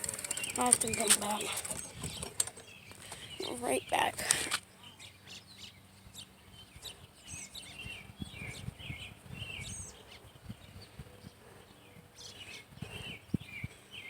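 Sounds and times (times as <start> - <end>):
bicycle thumps and rumble: 0.0 - 3.2
songbirds chirping: 0.0 - 14.0.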